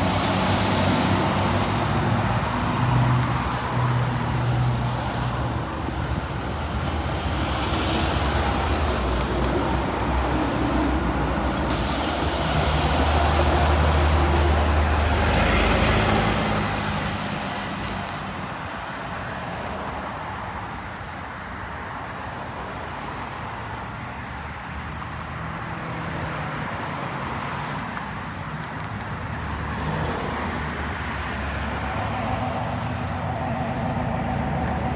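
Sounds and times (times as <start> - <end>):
diesel bus driving past: 0.0 - 34.9
air hiss: 11.6 - 15.7.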